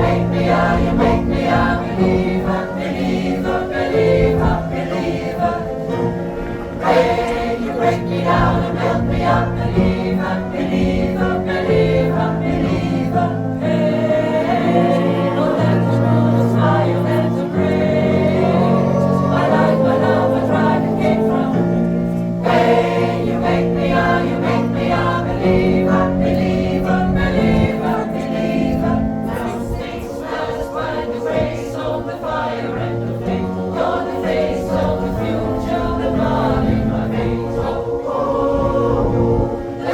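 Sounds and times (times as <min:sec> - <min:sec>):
choir singing in harmony: 0:00.0 - 0:39.9.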